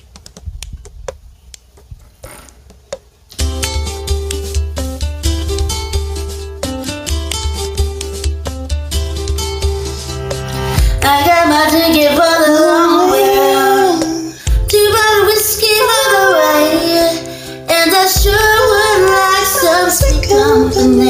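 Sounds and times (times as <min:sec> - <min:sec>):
backing track: 0:02.4 - 0:21.0
women singing pop duet: 0:10.8 - 0:21.0.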